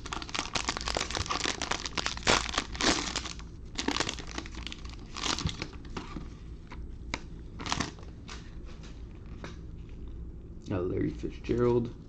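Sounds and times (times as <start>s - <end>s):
wrapper crinkling and tearing: 0.0s - 5.8s, 7.6s - 8.0s.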